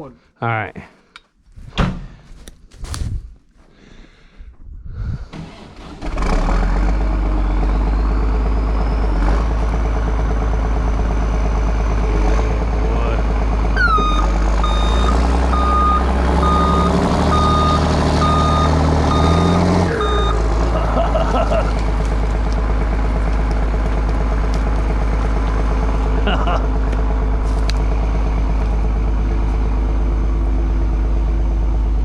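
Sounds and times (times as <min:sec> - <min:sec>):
diesel engine running hard: 0:05.4 - 0:32.0
reversing alarm beeping: 0:13.8 - 0:20.5.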